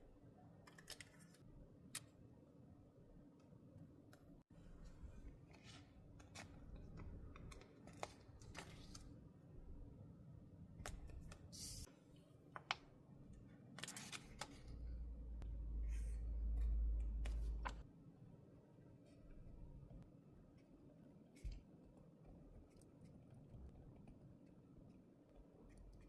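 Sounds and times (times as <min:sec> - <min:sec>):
low rumble: 0:14.9 - 0:17.8.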